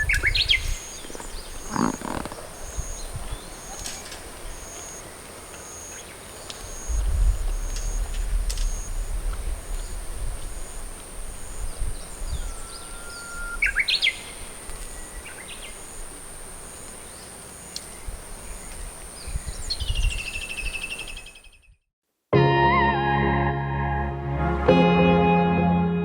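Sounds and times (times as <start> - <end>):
low rumbling: 6.9 - 11.6
rising whistled bird call: 12.3 - 14.4
short repeated high notes: 22.4 - 26.0.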